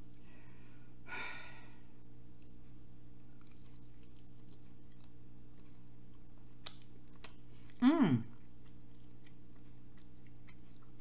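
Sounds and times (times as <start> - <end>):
low electrical hum: 0.0 - 11.0
biting and chewing: 2.3 - 11.0.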